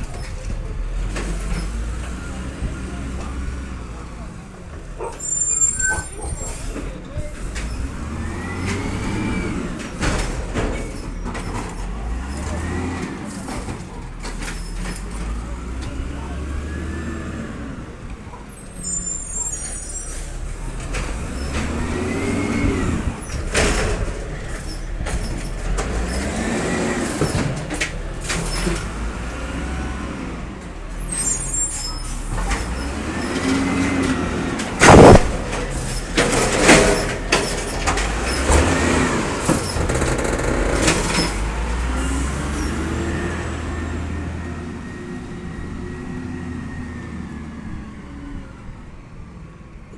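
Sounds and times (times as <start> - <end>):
garbage truck engine revving: 0.0 - 48.7
loud bang: 34.8 - 37.1.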